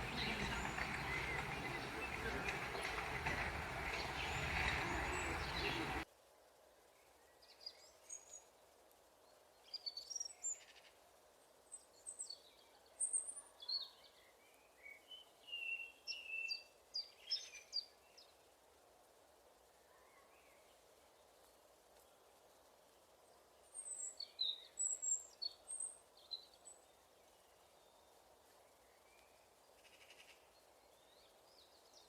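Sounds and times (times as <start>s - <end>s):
small birds chirping: 0.0s - 6.0s.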